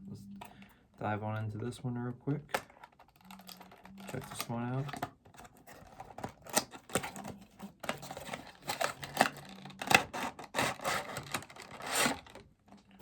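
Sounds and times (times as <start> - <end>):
cardboard rustling: 2.6 - 12.4
cardboard box being handled: 4.2 - 12.3.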